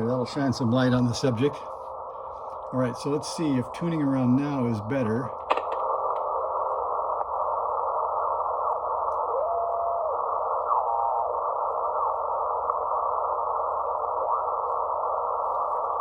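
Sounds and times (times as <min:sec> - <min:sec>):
radio band noise hiss: 0:00.0 - 0:16.0
whistling radio carriers: 0:05.7 - 0:16.0.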